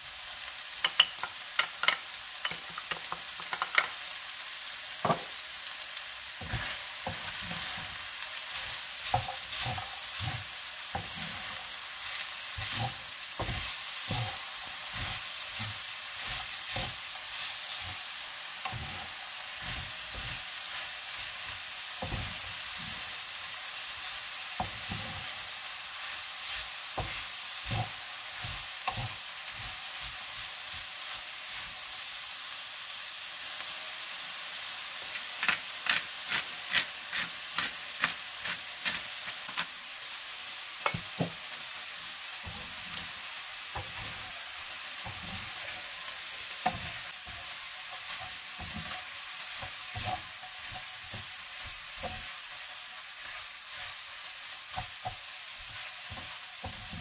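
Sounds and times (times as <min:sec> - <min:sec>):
meat sizzling in a pan: 0:00.0 - 0:57.0
wooden spatula scraping a pan: 0:06.4 - 0:23.2, 0:24.1 - 0:31.8, 0:42.4 - 0:46.0, 0:46.6 - 0:57.0.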